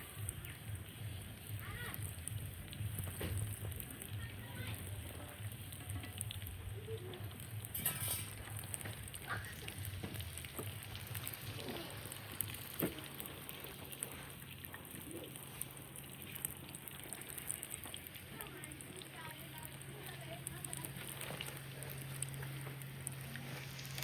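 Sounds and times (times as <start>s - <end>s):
food sizzling in a pot: 0.0s - 24.0s
stirring scrape: 7.7s - 9.0s.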